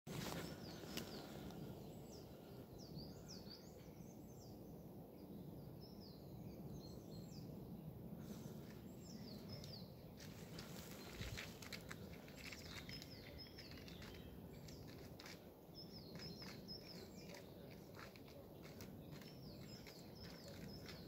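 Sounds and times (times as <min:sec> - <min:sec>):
songbird calls: 0:00.1 - 0:04.6, 0:08.3 - 0:21.0.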